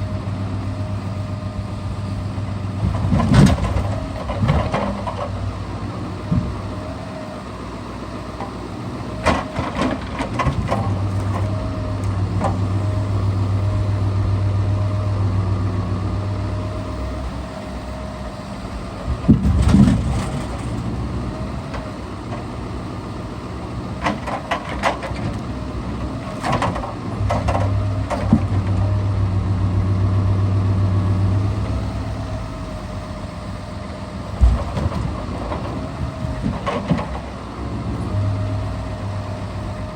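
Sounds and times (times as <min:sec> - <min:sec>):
timber knocks and thumps: 0:34.4 - 0:35.6.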